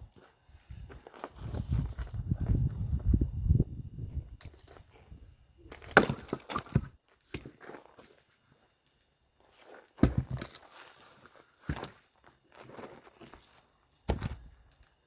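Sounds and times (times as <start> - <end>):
wood cracking and splitting: 5.8 - 6.9
axe striking wood: 5.8 - 7.5, 10.0 - 10.6, 14.1 - 14.4.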